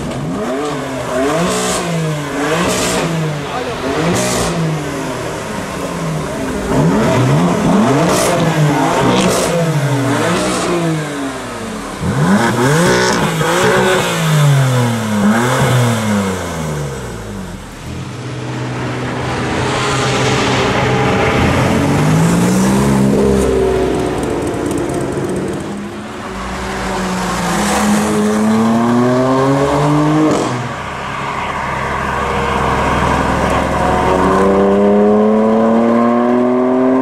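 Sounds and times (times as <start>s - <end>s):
exhaust cracks: 0.0s - 28.8s
sports car engine revving: 0.0s - 31.3s, 31.9s - 37.0s.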